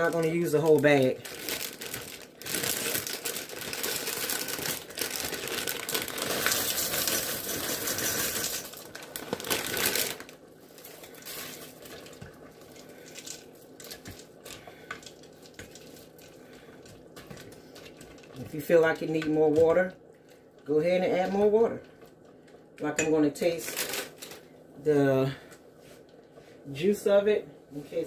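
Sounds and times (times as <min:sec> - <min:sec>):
plastic bag crinkling: 0:00.0 - 0:20.4, 0:23.4 - 0:24.6.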